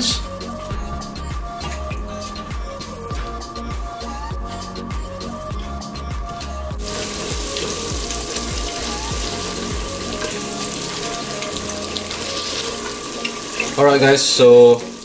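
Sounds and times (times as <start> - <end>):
background music with a beat: 0.0 - 15.0
spice paste sizzling in oil: 6.8 - 15.0.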